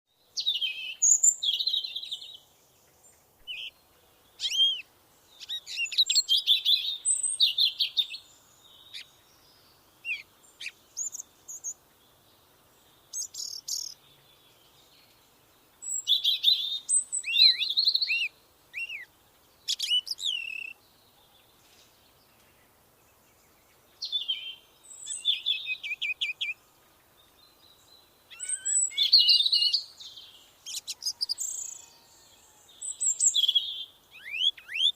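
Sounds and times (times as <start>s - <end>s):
songbird warbling: 3.4s - 3.8s, 4.4s - 9.2s, 10.0s - 11.8s, 15.8s - 20.8s, 28.3s - 32.2s, 32.8s - 34.9s.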